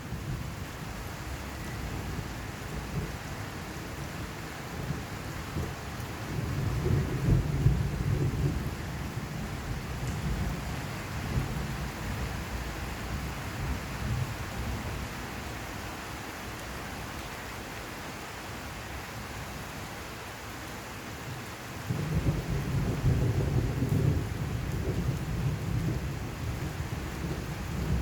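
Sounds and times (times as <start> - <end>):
steady rain hissing: 0.0 - 28.0
thunder rumbling: 4.2 - 15.0, 21.8 - 28.0.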